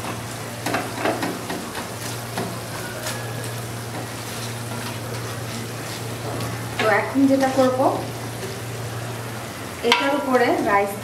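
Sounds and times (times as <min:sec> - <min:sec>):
gravy sizzling in a pan: 0:00.0 - 0:11.0.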